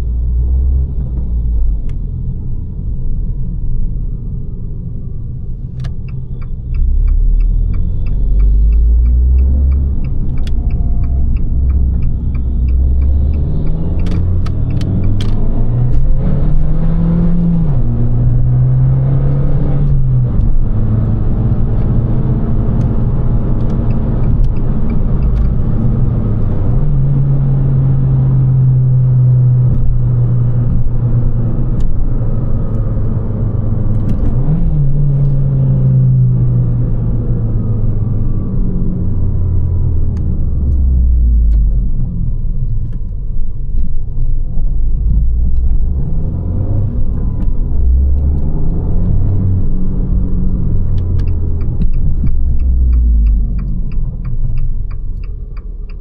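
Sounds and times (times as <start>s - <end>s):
regular ticking clicks: 5.7s - 16.6s, 19.8s - 27.2s, 47.4s - 56.0s
car engine revving: 5.8s - 43.1s, 44.2s - 56.0s.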